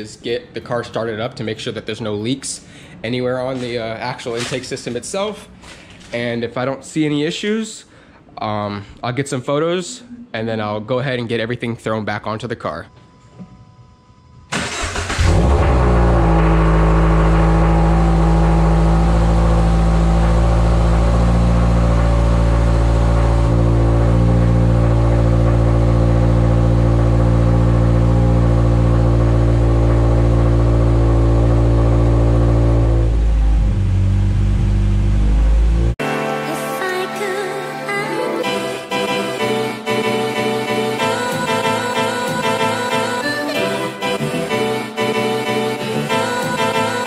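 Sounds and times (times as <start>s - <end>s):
car engine starting: 14.5s - 36.0s
car engine idling: 14.6s - 36.0s.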